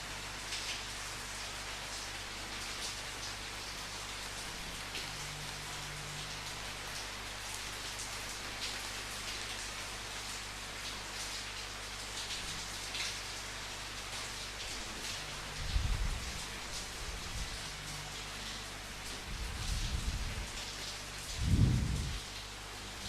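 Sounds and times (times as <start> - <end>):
rain drops striking: 0.0 - 23.0
low steady hum: 14.6 - 23.0.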